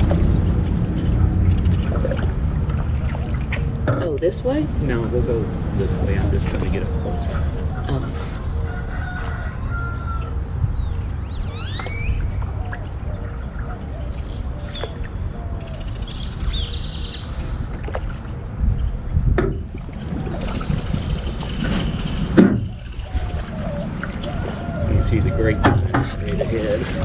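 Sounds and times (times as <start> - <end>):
birds whistling and chirping: 0.0 - 3.9, 4.9 - 19.1, 21.9 - 27.0
wind rumble on microphone: 0.0 - 27.0.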